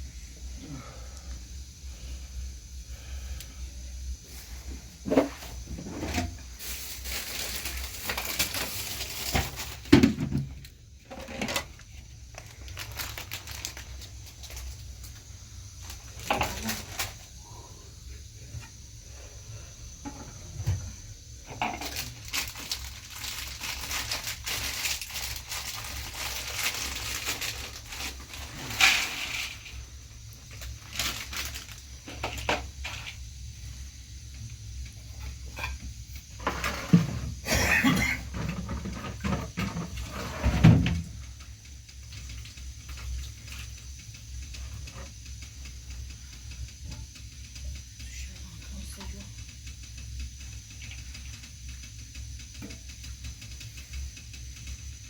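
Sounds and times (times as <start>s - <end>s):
rustling: 21.8s - 29.7s.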